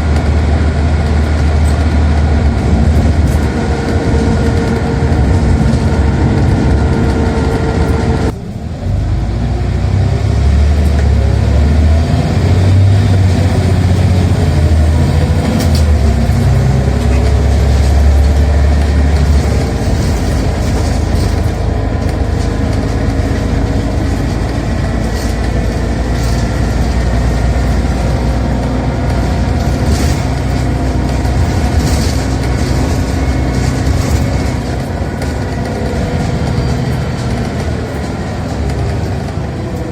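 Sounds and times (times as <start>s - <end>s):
bus engine accelerating: 0.0s - 39.9s.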